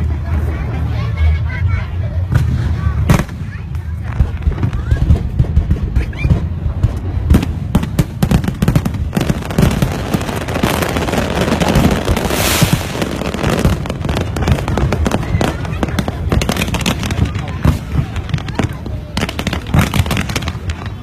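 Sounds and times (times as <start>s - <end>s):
fireworks crackling: 0.0s - 21.0s
fireworks bangs and booms: 2.2s - 21.0s.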